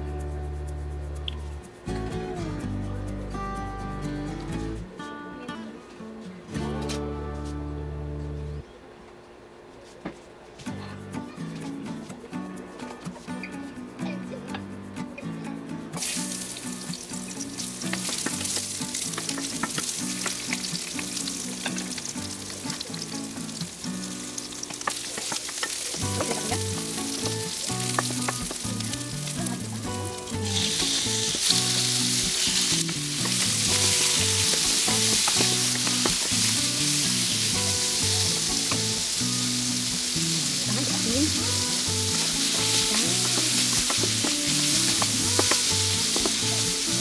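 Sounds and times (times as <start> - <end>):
background music: 0.0 - 8.6, 10.8 - 47.0
onions sizzling in a frying pan: 16.0 - 47.0
wooden spatula stirring: 40.5 - 47.0.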